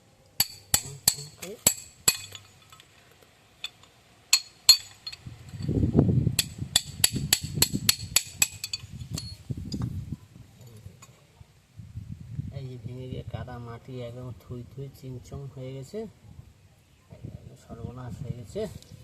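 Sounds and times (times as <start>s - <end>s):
hand tools tapping metal: 0.4s - 5.8s, 6.4s - 9.9s.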